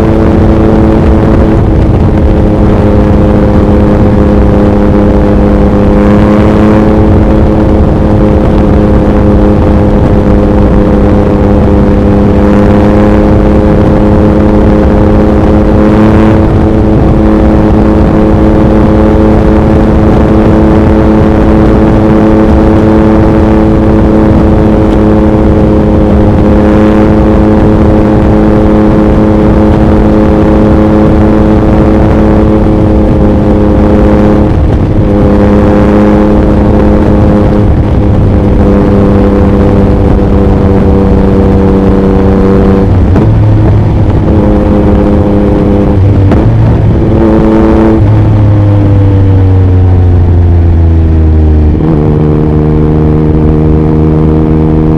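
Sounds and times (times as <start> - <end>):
motorcycle engine at speed: 0.0 - 54.9
wind noise on microphone: 0.0 - 54.9.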